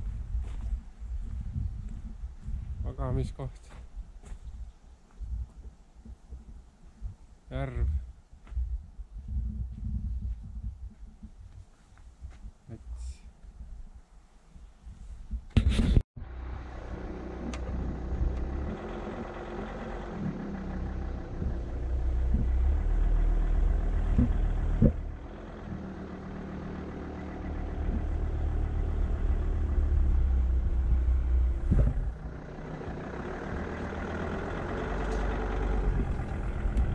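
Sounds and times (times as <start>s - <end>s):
car engine running: 16.2s - 36.9s.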